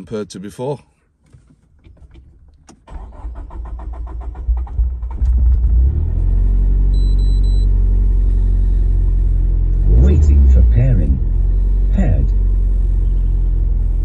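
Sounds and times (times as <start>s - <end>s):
engine cranking on starter: 2.7s - 5.9s
car engine idling: 2.9s - 14.0s.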